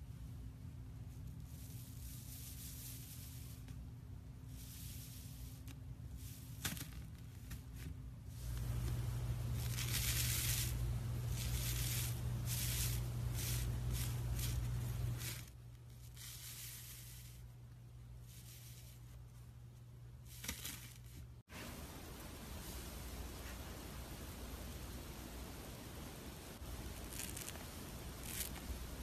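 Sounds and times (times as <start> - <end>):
steady low hum: 0.0 - 29.0
slime crackling and squishing: 26.8 - 29.0.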